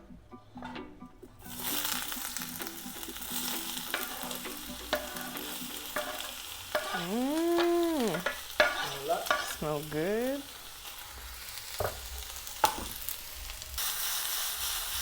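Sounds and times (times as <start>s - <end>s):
food sizzling in oil: 1.4s - 15.0s
utensil scraping a pan: 3.6s - 9.7s.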